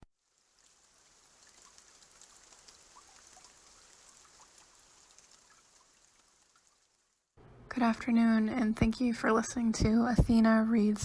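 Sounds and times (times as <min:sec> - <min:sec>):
faint rain falling: 0:00.0 - 0:11.0.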